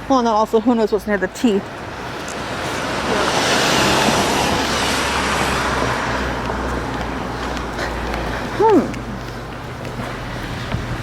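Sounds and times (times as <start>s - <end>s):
car passing by: 1.8s - 8.4s.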